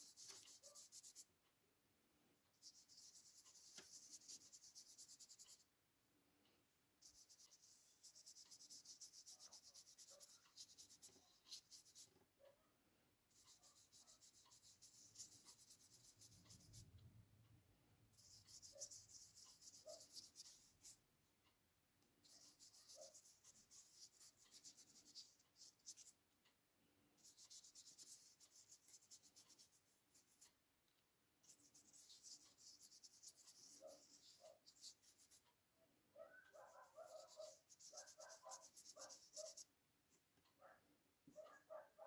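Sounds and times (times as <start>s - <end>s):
pencil scratching on paper: 0.0s - 1.3s, 2.6s - 5.6s, 7.0s - 12.2s, 13.3s - 17.0s, 18.2s - 21.0s, 22.2s - 26.1s, 27.2s - 30.5s, 31.4s - 35.4s, 36.5s - 39.7s.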